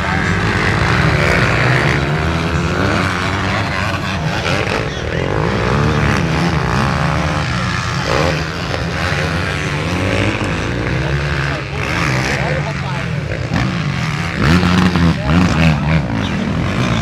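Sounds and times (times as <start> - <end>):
motocross bikes revving: 0.0 - 17.0.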